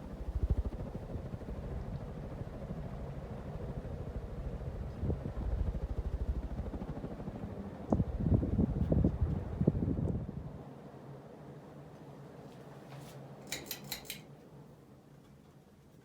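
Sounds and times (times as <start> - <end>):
fan air buffeting microphone: 7.7 - 10.6.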